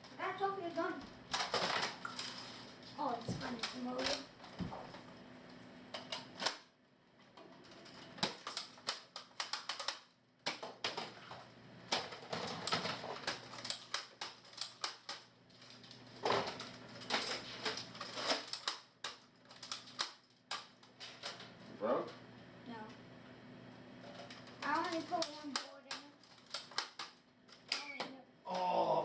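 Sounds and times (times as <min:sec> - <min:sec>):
toy dart guns clicking: 0:08.2 - 0:11.0, 0:13.2 - 0:15.3, 0:18.3 - 0:20.7, 0:24.6 - 0:28.2.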